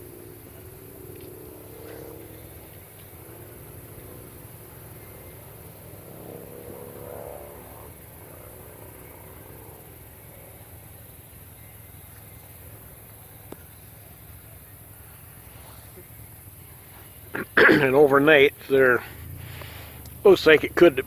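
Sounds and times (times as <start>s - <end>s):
vehicle engine passing: 0.0s - 9.9s, 14.0s - 21.0s
steady low rumble: 9.9s - 21.0s.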